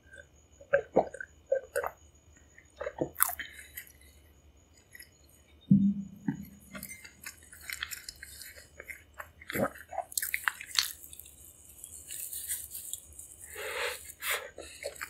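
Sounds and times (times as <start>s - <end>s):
wet chewing clicks: 0.7s - 4.1s, 6.8s - 13.5s.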